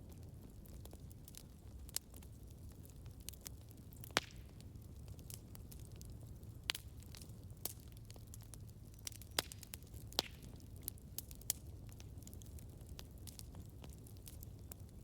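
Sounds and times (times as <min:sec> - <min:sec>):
campfire flames rumbling: 0:00.0 - 0:15.0
fire crackling and popping: 0:00.0 - 0:15.0.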